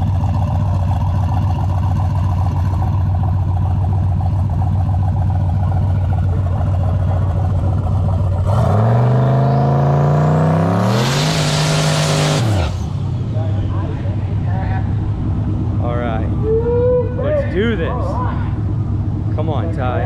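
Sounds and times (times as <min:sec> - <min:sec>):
race car engine revving: 0:05.7 - 0:20.0.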